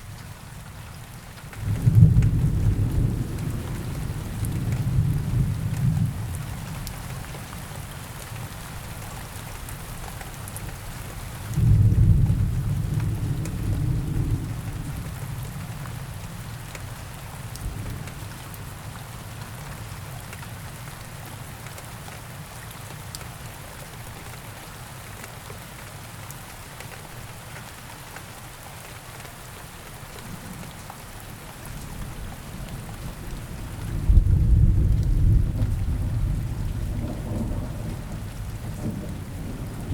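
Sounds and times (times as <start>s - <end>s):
steady rain in a forest: 0.0s - 39.9s
thunder rumble: 32.7s - 39.9s.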